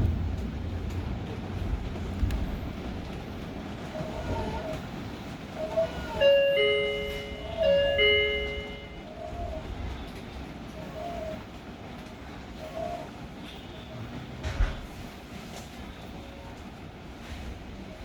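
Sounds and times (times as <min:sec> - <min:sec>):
train running rumble: 0:00.0 - 0:18.0
two-note falling door chime: 0:06.2 - 0:09.0.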